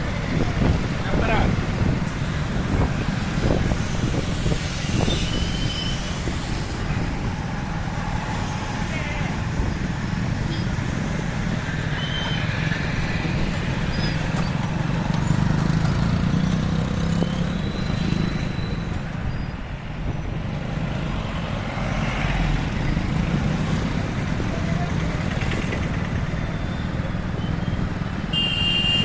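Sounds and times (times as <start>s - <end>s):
wind rumble on microphone: 0.0s - 11.8s
road and traffic noise: 0.0s - 29.0s.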